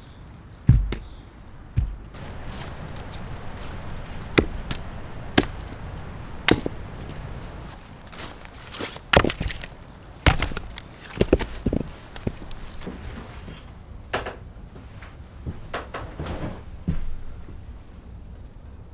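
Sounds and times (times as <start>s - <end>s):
wood chopping strikes: 0.7s - 1.2s, 1.8s - 12.9s.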